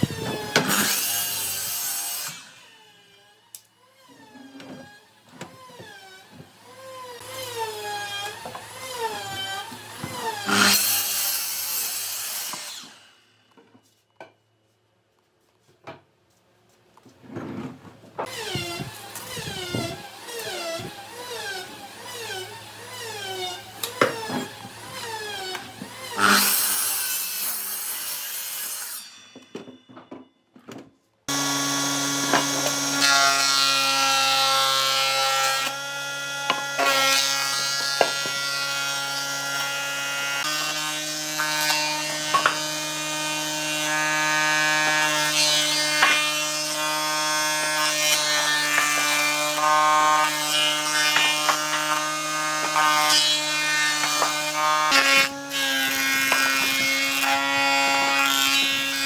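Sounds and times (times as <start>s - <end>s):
power tools cutting wood: 0.0s - 13.4s, 18.2s - 29.8s, 31.3s - 59.0s.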